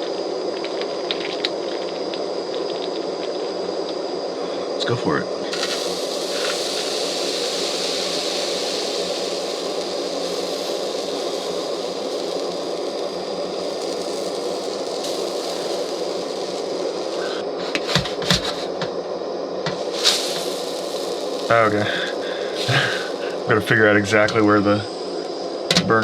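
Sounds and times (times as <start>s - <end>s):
batter sizzling in a pan: 5.3s - 18.8s, 19.7s - 24.3s.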